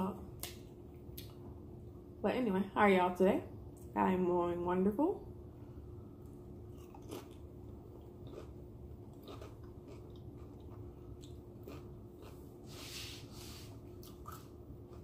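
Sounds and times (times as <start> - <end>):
person chewing crunchy taco shell: 6.6 - 15.0.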